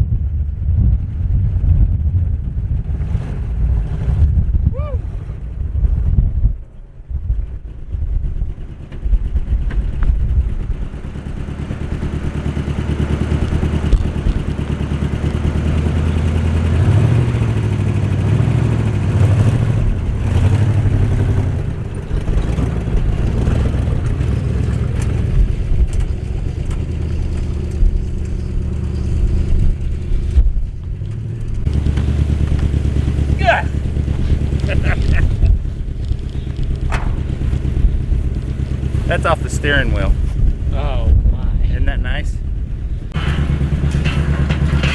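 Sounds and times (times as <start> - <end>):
pickup truck engine running: 2.2 - 41.3, 42.2 - 44.9.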